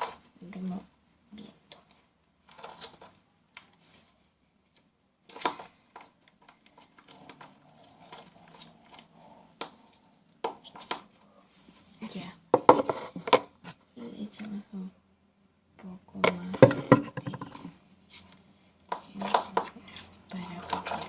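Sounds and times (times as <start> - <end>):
utensil stirring slime: 16.3 - 21.0.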